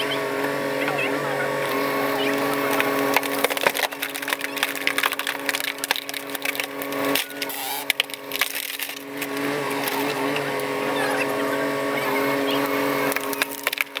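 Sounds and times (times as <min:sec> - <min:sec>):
machine engine running: 0:00.0 - 0:14.0
wood cracking and splintering: 0:01.7 - 0:10.8, 0:12.4 - 0:14.0.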